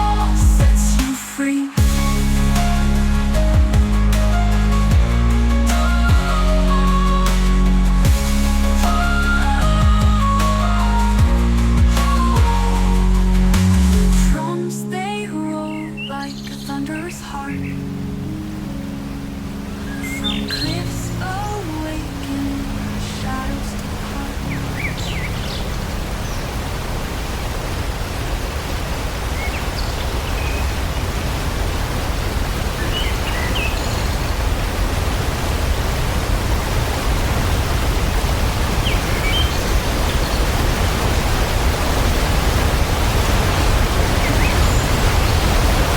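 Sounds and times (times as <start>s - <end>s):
waterfall roaring: 16.2s - 45.9s.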